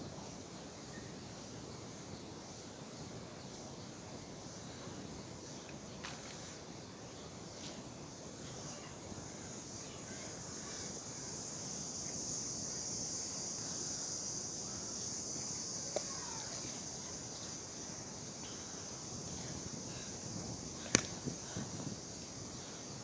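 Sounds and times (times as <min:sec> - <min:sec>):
sharp click: 0:20.9 - 0:21.2.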